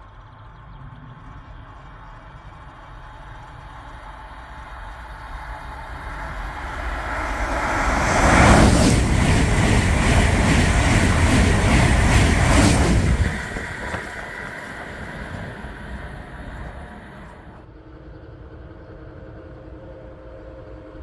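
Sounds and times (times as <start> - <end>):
wheels beating on rails: 1.6 - 17.6
high-speed train passing: 2.9 - 17.8.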